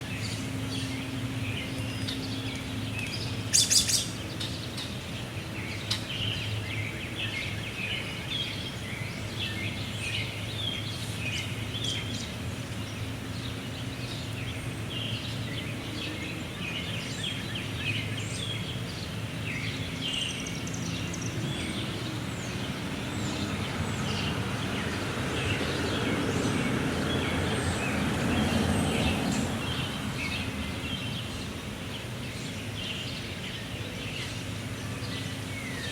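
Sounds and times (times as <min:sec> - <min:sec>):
small birds chirping: 0:00.0 - 0:35.9.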